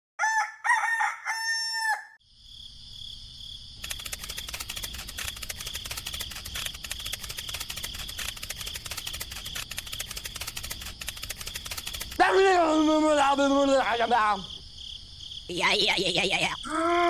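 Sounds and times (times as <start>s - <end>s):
rooster crowing: 0.2s - 2.2s
rapid dense ticking: 3.8s - 12.2s.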